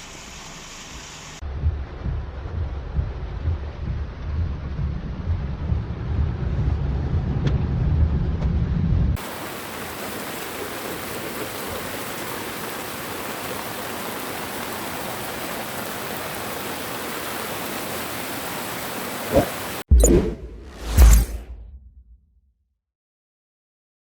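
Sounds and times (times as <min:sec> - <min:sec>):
flood water rushing hiss: 0:00.0 - 0:01.4, 0:09.2 - 0:19.9
low rumbling noise: 0:01.4 - 0:09.2.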